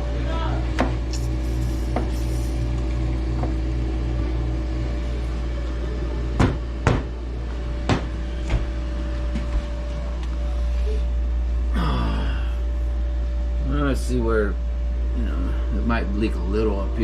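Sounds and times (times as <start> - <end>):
low hum: 0.0 - 17.0
sharp knocks: 6.4 - 7.1, 7.8 - 8.7.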